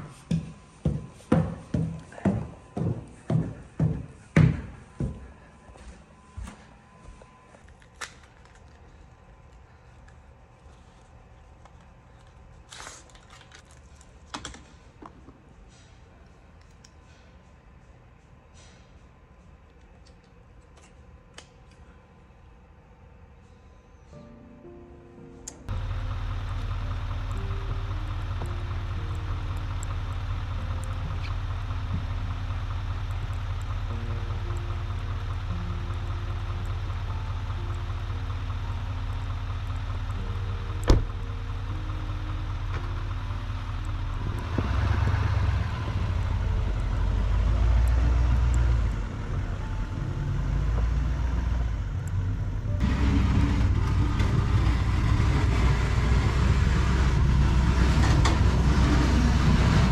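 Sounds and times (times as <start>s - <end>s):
vehicle engine idling: 25.7s - 59.9s.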